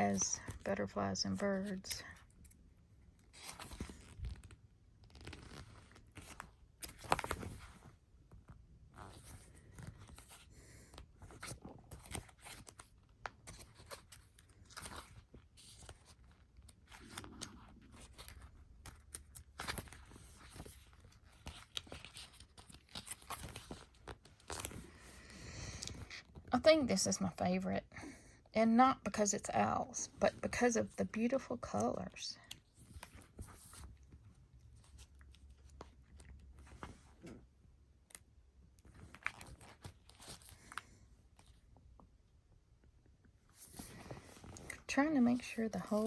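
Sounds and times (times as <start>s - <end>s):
paper pages rustling: 3.2s - 8.0s, 9.1s - 25.2s, 32.5s - 37.2s, 38.8s - 41.6s.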